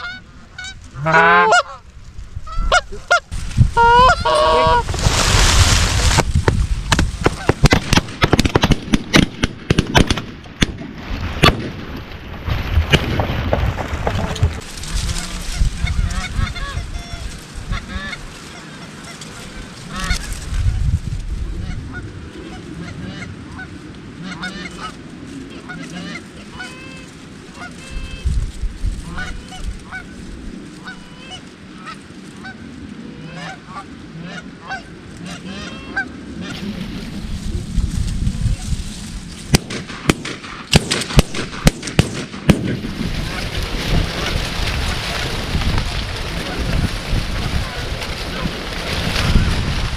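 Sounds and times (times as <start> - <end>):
geese honking: 0.0 - 5.3, 14.6 - 20.4, 21.6 - 28.3, 29.0 - 30.2, 30.8 - 37.2, 43.0 - 49.5
shotgun shots: 6.9 - 10.8, 39.5 - 43.0.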